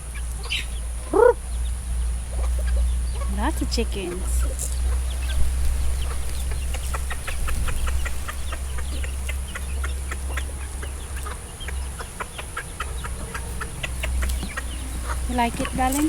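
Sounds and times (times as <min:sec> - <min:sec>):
chicks cheeping: 0:00.0 - 0:16.0.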